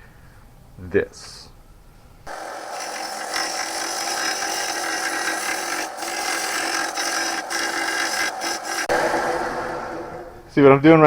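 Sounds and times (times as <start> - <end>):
belt sander grinding metal blade: 2.3 - 10.6.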